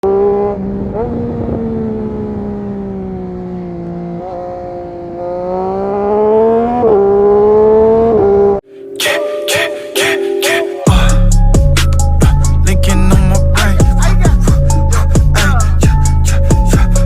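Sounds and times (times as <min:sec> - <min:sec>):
motorcycle engine at high revs: 0:00.0 - 0:08.6.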